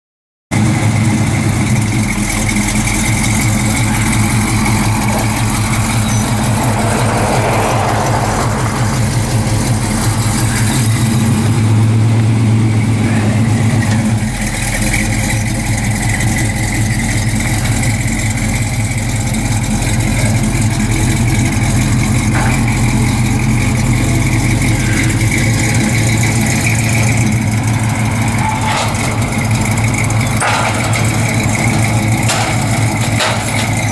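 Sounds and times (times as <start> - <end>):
pickup truck engine idling: 0.5 - 33.9.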